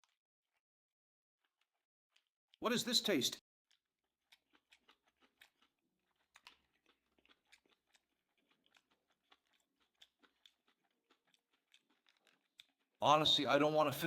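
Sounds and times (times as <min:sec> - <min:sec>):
wet chewing mouth clicks: 0:00.0 - 0:00.7, 0:01.4 - 0:02.4, 0:03.7 - 0:13.0.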